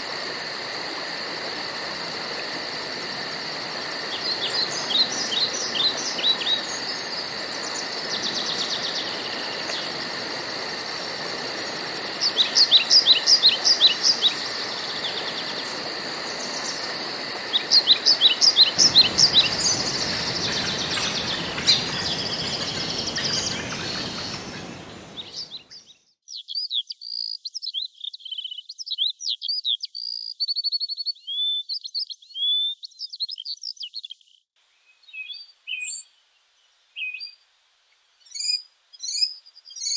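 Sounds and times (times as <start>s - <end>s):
high insect-like drone: 0.0s - 25.4s
background hiss: 0.0s - 25.8s, 34.6s - 39.9s
woodland birds singing: 3.8s - 37.4s.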